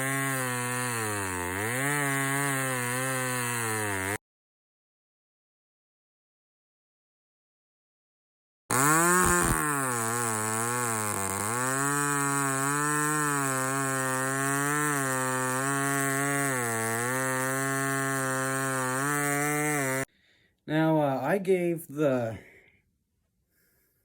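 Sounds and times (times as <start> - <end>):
chainsaw running at high speed: 0.0 - 4.2, 8.7 - 20.1.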